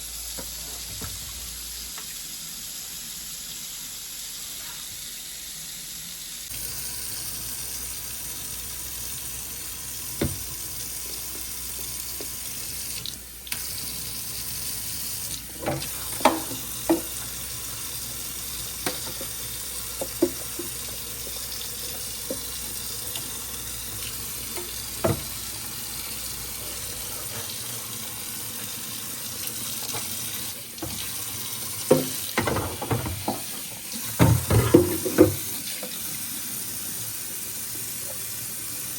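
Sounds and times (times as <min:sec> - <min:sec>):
tap water running into sink: 0:06.5 - 0:38.9
knocks and clatters of dishes: 0:15.6 - 0:17.2, 0:18.8 - 0:19.4, 0:20.0 - 0:20.9, 0:24.6 - 0:25.4, 0:31.9 - 0:35.5.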